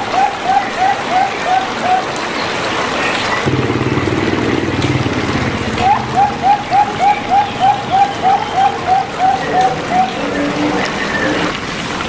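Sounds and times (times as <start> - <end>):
dove cooing: 0.0 - 2.6, 3.6 - 11.6.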